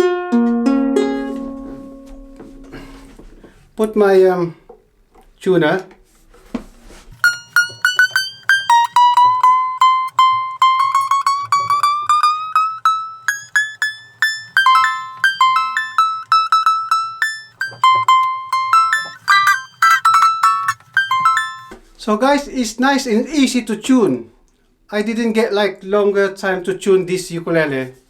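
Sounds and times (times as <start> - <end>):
ukulele string plucked: 0.0 - 3.1, 7.2 - 21.9
ukulele strings plucked in turn: 0.0 - 3.5, 7.2 - 21.9.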